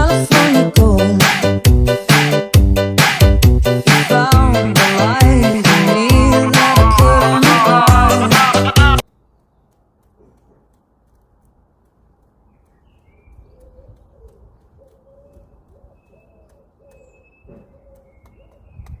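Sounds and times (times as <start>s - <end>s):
higher bird chirps: 12.5s - 18.8s.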